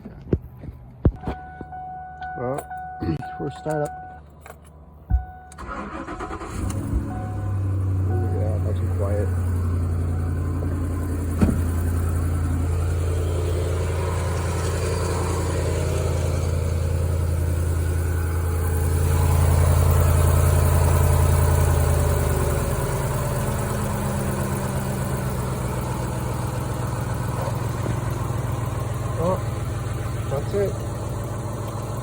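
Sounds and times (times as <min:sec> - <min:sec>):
engine idling: 0:01.7 - 0:32.0
short knock: 0:11.4 - 0:11.7.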